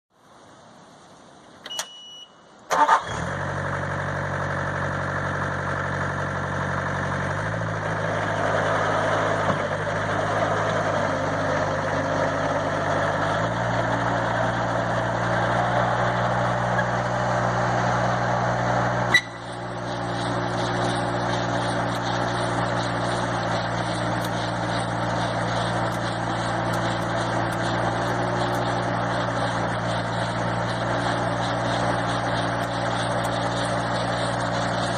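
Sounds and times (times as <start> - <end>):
diesel engine starting and running: 0.2 - 34.9
short electronic beep: 1.6 - 2.5.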